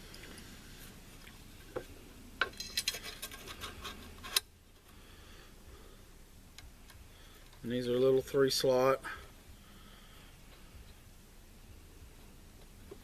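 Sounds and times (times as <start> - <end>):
small metal parts clinking: 2.4 - 3.7.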